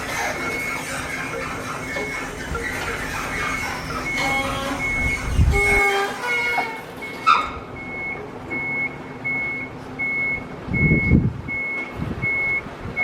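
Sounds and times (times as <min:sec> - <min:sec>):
electronic warning beeper: 0:00.0 - 0:06.0.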